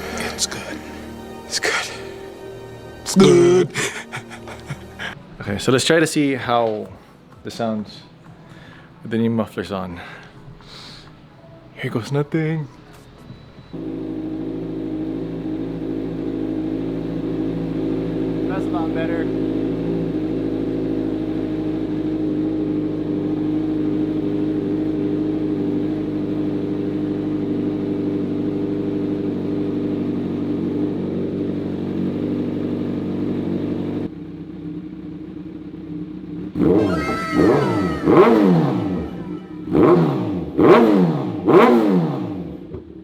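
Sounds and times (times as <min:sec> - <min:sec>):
engine revving in throttle blips: 0:00.0 - 0:09.1, 0:10.2 - 0:43.0
motorcycle engine idling: 0:00.0 - 0:43.0.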